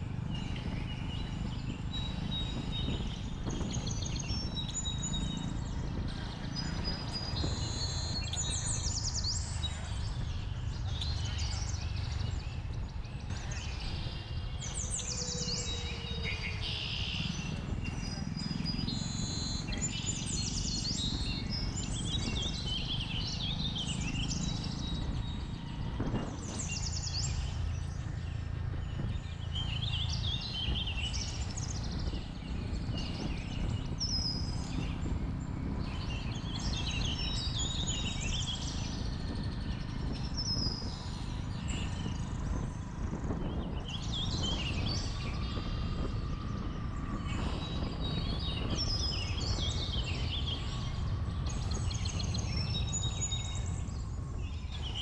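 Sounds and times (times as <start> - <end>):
birds chirping and trilling: 0.0 - 55.0
motorcycle engine rumble: 0.0 - 55.0
wind on microphone: 0.0 - 55.0.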